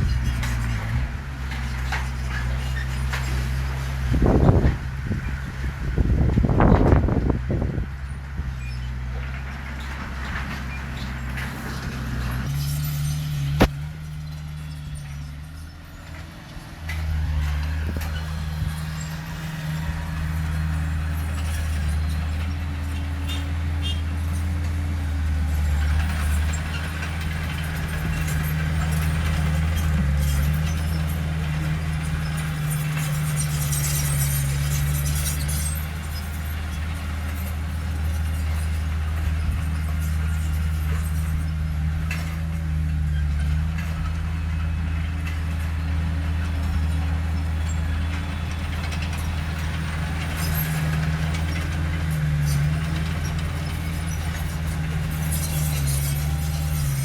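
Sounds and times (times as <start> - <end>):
heavy diesel engine under load: 0.0 - 57.0.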